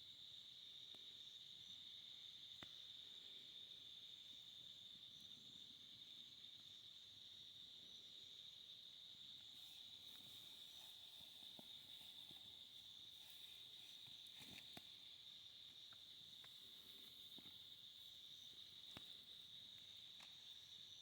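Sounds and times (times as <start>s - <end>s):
crickets trilling: 0.0s - 21.0s
soft ticks: 15.8s - 16.6s.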